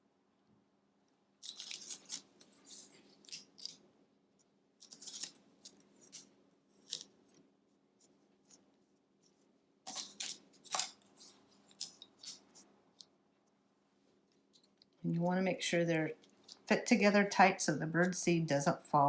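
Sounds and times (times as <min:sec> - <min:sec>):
wooden sticks clicking and clattering: 0:09.9 - 0:13.1.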